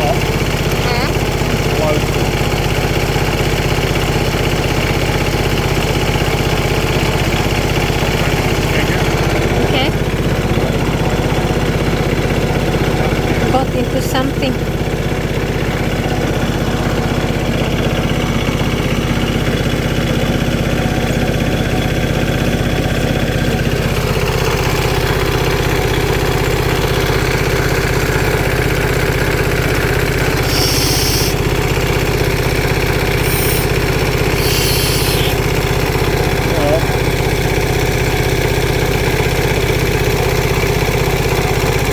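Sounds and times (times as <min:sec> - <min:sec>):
tractor diesel engine idling: 0:00.0 - 0:41.9
short hisses: 0:30.4 - 0:31.5, 0:33.1 - 0:35.5.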